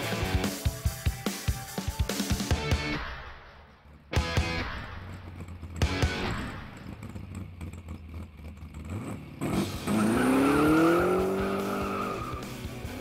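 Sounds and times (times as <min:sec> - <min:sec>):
car engine revving: 0:02.6 - 0:13.0.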